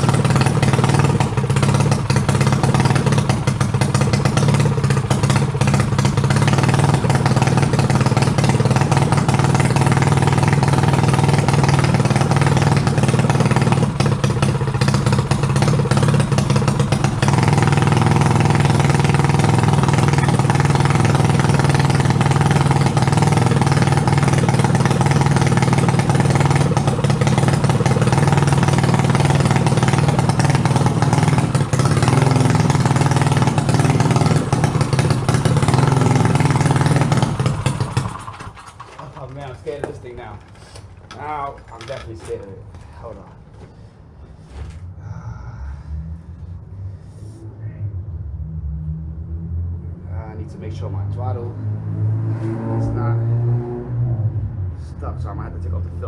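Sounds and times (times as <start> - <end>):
mini bike engine running: 0.0 - 42.3.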